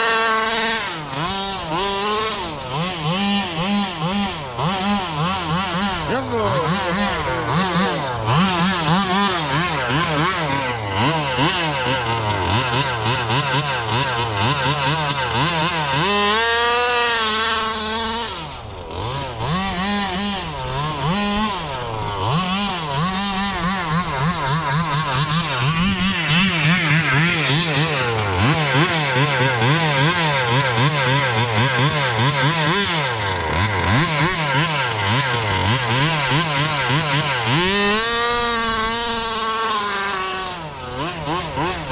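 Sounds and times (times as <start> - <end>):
small two-stroke engine revving: 0.0 - 41.9.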